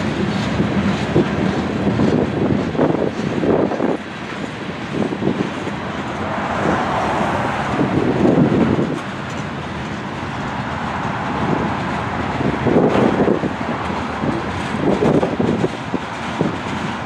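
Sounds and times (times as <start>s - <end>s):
train wheels rumbling on rails: 0.0s - 17.0s
car passing: 5.5s - 15.2s.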